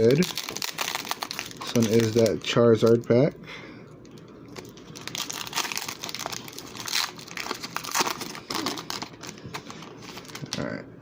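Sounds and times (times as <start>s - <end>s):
foil wrapper crinkling: 0.0s - 3.0s, 4.1s - 10.6s.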